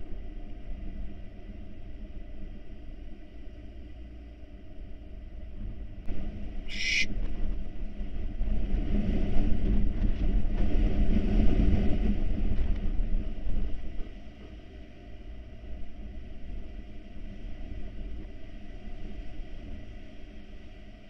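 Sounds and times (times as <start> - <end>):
short hiss: 6.7 - 7.1.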